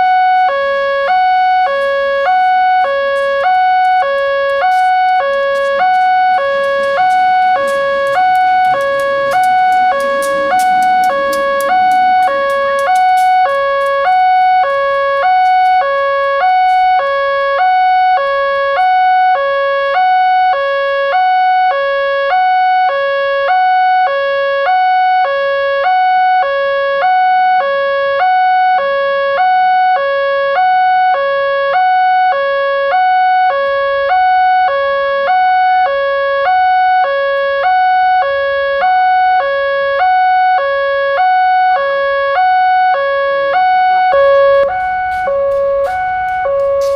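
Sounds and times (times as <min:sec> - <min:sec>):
steady high ring: 0:00.0 - 0:21.6, 0:44.2 - 0:46.9
two-tone crossing alarm chime: 0:44.2 - 0:46.9.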